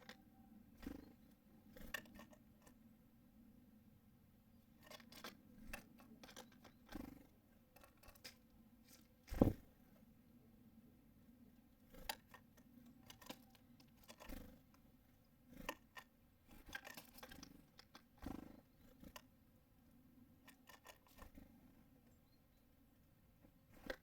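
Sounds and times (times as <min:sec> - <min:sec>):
birds pecking at a feeder: 0:00.0 - 0:02.9, 0:04.5 - 0:09.7, 0:11.6 - 0:22.2.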